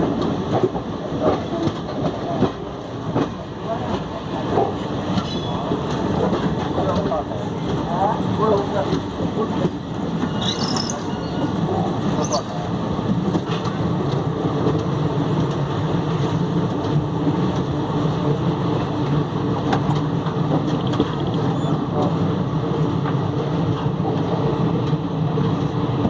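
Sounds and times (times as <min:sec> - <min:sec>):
passenger train rumbling: 0:00.0 - 0:26.0
high squeaks: 0:10.2 - 0:12.6.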